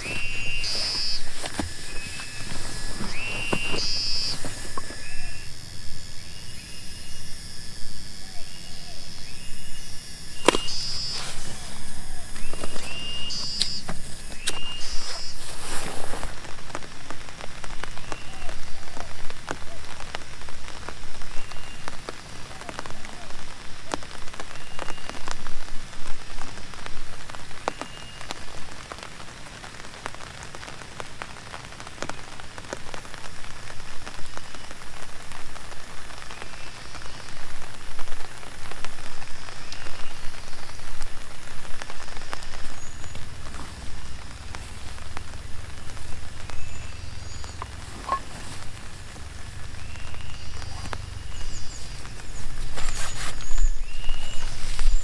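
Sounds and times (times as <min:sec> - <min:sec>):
steady rain falling: 0:15.5 - 0:52.8.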